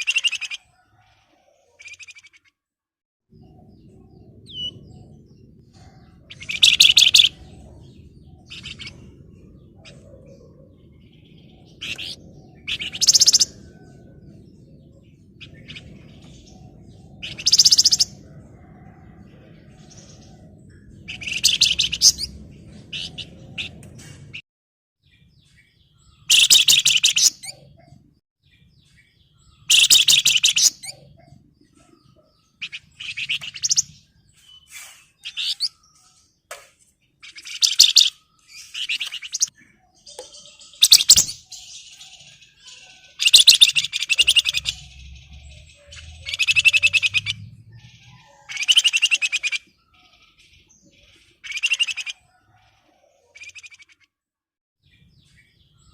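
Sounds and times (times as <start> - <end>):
bird singing in chattering bursts: 0.0 - 0.7, 6.1 - 14.0, 14.9 - 18.2, 20.8 - 23.8, 26.0 - 27.7, 29.5 - 36.3, 37.2 - 52.3.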